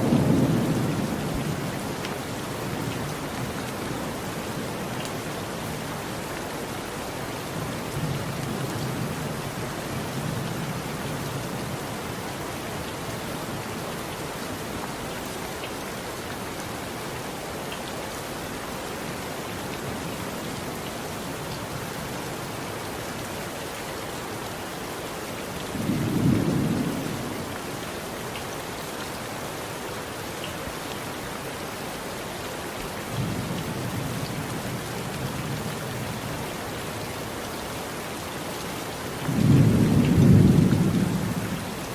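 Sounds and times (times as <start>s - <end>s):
steady rain falling: 0.0s - 41.9s
thunder rumbling: 39.3s - 41.7s.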